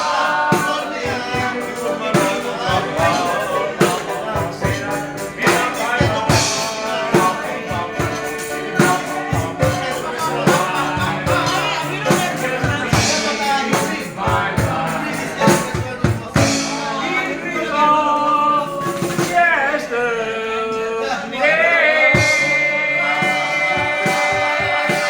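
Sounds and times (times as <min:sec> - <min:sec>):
tambourine: 0:00.0 - 0:17.0
sharp percussion hits: 0:00.0 - 0:17.8, 0:18.6 - 0:19.5, 0:22.2 - 0:25.0
person singing: 0:00.0 - 0:25.0.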